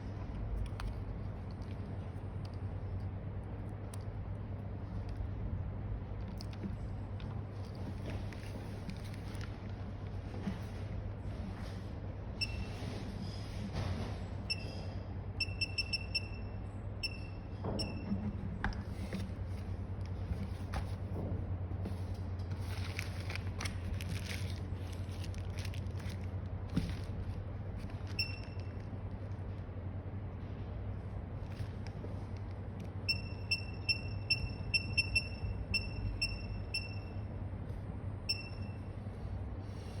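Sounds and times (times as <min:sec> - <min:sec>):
steady low hum: 0:00.0 - 0:40.0
short electronic beeps: 0:12.4 - 0:12.8, 0:14.5 - 0:14.8, 0:15.4 - 0:18.0, 0:33.1 - 0:37.2, 0:38.3 - 0:38.9.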